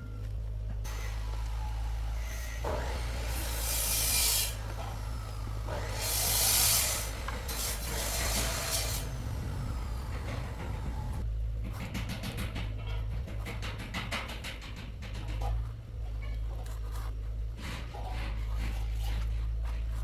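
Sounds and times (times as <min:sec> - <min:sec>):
steady low hum: 0:00.0 - 0:20.0
rasping scraping strokes: 0:00.9 - 0:11.2.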